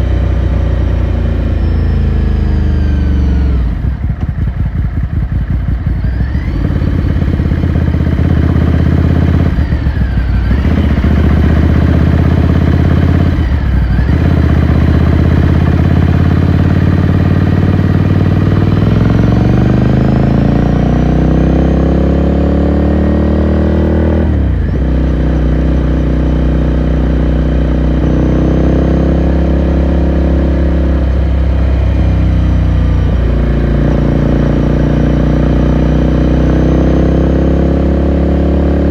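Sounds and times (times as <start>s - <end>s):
motorcycle engine pulling: 3.0s - 22.0s.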